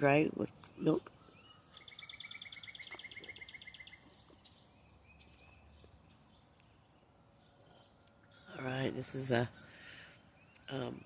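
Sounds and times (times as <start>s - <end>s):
songbird trilling: 0.0s - 11.0s
faint bird chirps: 0.1s - 11.0s.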